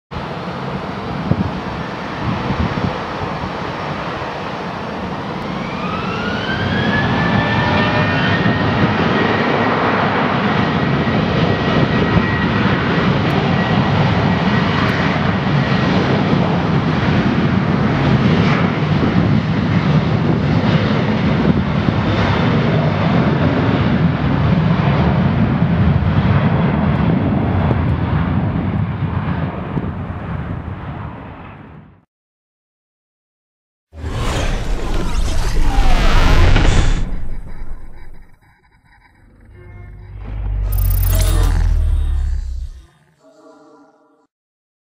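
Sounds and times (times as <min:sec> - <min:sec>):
jet engine whine: 0:00.2 - 0:32.0, 0:34.0 - 0:44.2
steady jet roar: 0:34.0 - 0:43.2
jet engines spooling up: 0:34.0 - 0:43.6.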